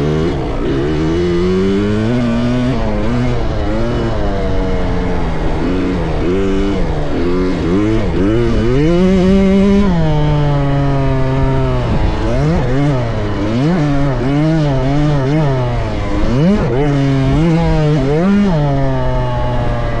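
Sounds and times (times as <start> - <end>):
two-stroke motorcycle engine revving: 0.0 - 20.0.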